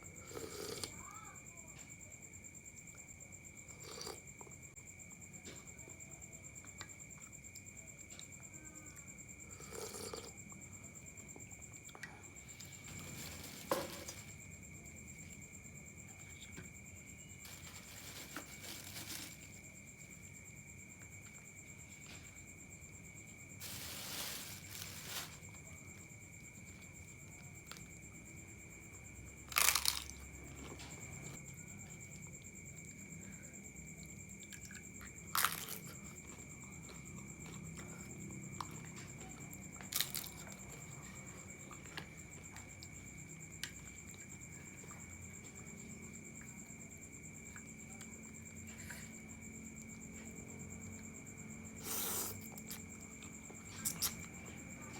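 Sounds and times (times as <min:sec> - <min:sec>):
chewing noodles: 0:09.5 - 0:10.7.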